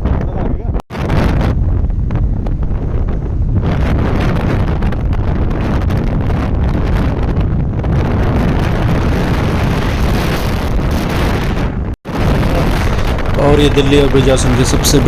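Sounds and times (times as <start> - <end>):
wind buffeting microphone: 0.0 - 15.0
motorcycle engine rumbling: 12.1 - 15.0.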